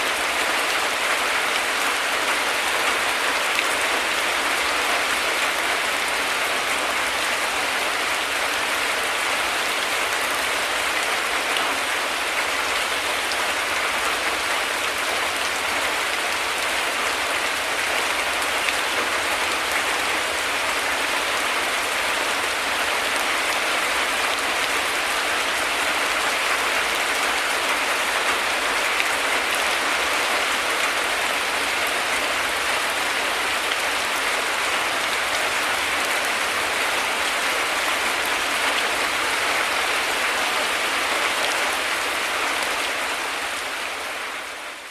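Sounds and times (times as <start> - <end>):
heavy rain: 0.0 - 44.9.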